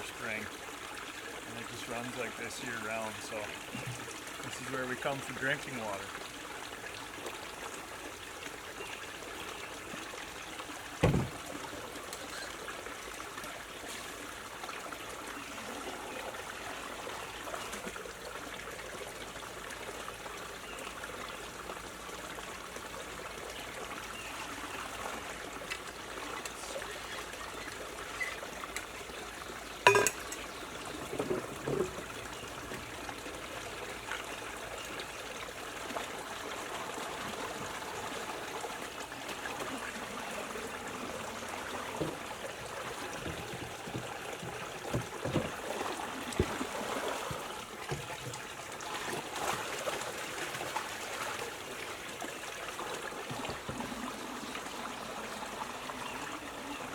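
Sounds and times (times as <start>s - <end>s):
water pouring from a pipe: 0.0s - 56.9s
sharp knocks: 11.0s - 11.4s.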